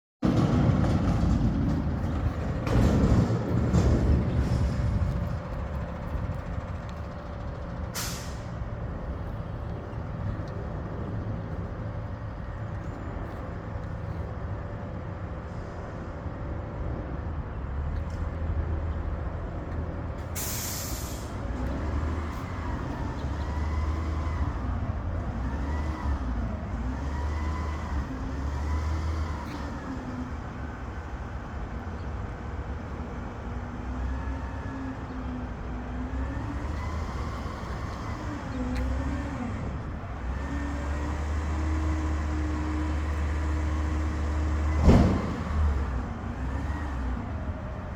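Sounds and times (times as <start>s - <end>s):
diesel engine rumbling: 0.2s - 47.9s
air brake hissing: 7.9s - 8.6s, 20.3s - 21.5s.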